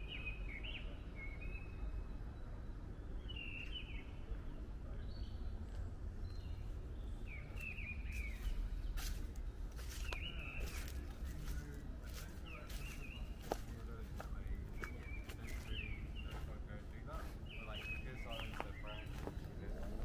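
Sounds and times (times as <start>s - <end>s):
low steady rumble: 0.0s - 20.0s
small birds chirping: 0.0s - 20.0s
footsteps on a path: 5.7s - 20.0s.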